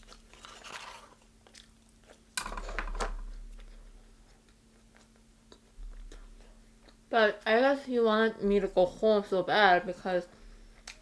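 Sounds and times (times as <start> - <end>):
chewing with crackles: 0.0 - 2.4, 3.2 - 7.1, 10.6 - 11.0.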